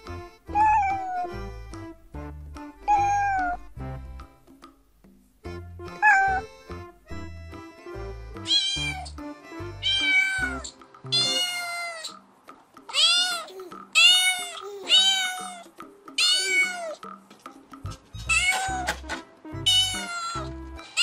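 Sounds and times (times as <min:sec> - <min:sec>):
background music: 0:00.0 - 0:21.0
cat meowing: 0:00.5 - 0:01.4, 0:02.8 - 0:03.7, 0:06.0 - 0:06.5, 0:08.4 - 0:09.1, 0:09.8 - 0:12.2, 0:12.9 - 0:17.0, 0:18.2 - 0:19.0, 0:19.6 - 0:21.0.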